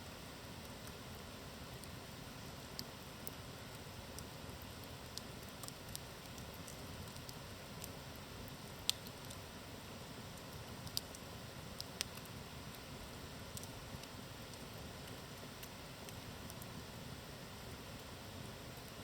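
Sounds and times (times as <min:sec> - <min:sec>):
fire crackles and pops: 0:00.4 - 0:19.0.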